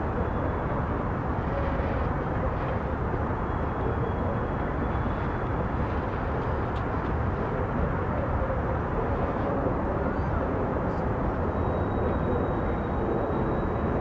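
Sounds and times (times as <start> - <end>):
freight train rumbling slowly: 0.0 - 14.0
faint high whine: 9.4 - 14.0.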